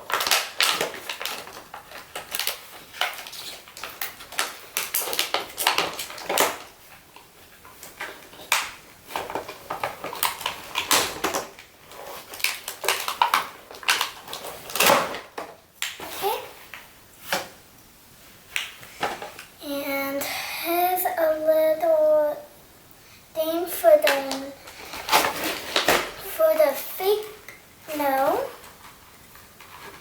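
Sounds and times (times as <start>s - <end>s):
plastic packaging handled: 0.0s - 17.5s, 24.0s - 26.3s.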